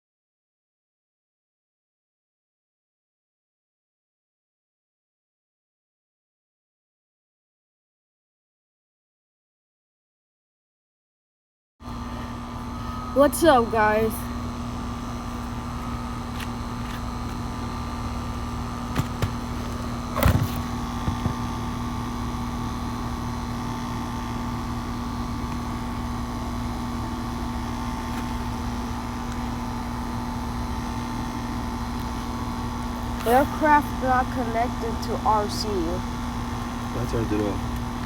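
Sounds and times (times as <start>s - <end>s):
machine hum with low rumble: 11.8s - 38.0s.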